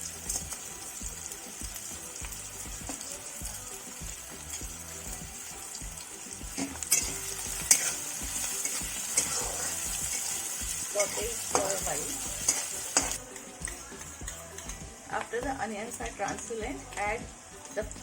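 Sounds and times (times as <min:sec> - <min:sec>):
food sizzling in hot oil: 0:00.0 - 0:18.0
spatula scraping a pan: 0:06.6 - 0:14.8.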